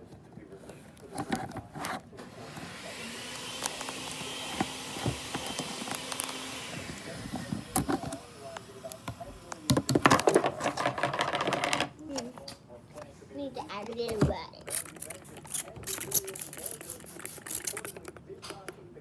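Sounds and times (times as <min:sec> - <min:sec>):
clicking and clattering handling: 0:00.0 - 0:02.1, 0:13.8 - 0:18.8
small electric motor whining: 0:02.2 - 0:09.6.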